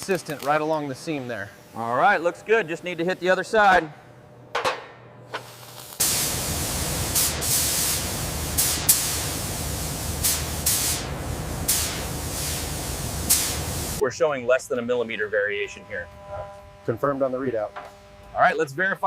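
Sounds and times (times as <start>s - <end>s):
welding arc crackling and hissing: 0.0s - 3.1s, 5.3s - 14.0s.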